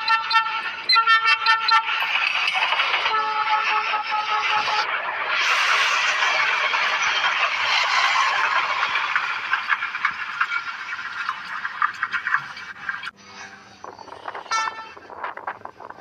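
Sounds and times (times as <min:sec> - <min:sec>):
train wheels rushing on rails: 0:00.0 - 0:12.0
wheel squeals and rattles: 0:00.0 - 0:16.0.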